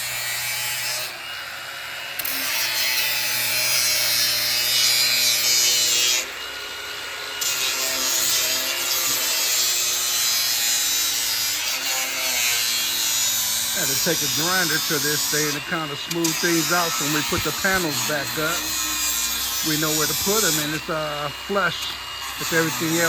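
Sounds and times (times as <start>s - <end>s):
grinder motor whine: 0.0s - 23.0s
grinding hiss: 2.1s - 23.0s.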